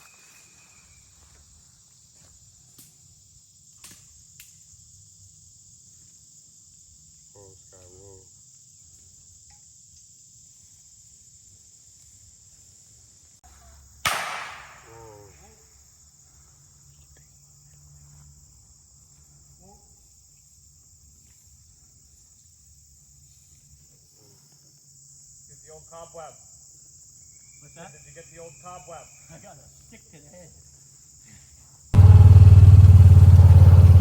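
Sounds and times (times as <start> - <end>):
blank pistol shot: 14.1 - 14.9.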